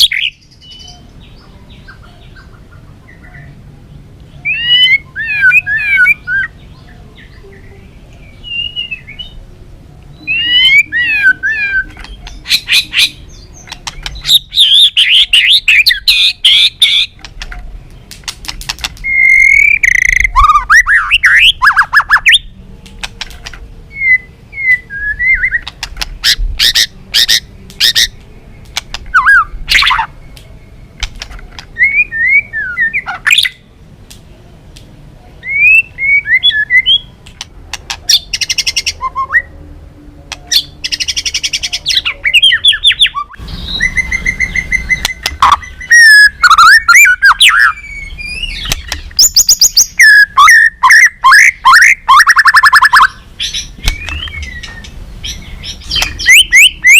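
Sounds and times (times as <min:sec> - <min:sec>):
bird singing whistled notes: 0:04.3 - 0:09.4, 0:10.1 - 0:17.2, 0:19.0 - 0:22.5, 0:23.9 - 0:30.9, 0:31.8 - 0:33.6, 0:35.4 - 0:37.2, 0:38.1 - 0:39.6, 0:40.5 - 0:56.9
bird rattling clicks and chatter: 0:17.2 - 0:19.0.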